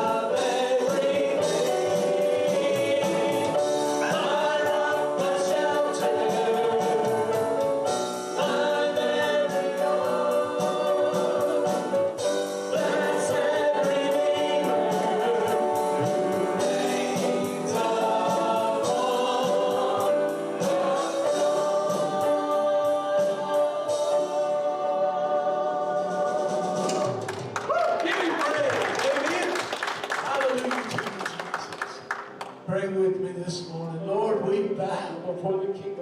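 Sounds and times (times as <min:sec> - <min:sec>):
choir singing gospel song: 0:00.0 - 0:27.6
instrumental accompaniment: 0:00.0 - 0:32.9.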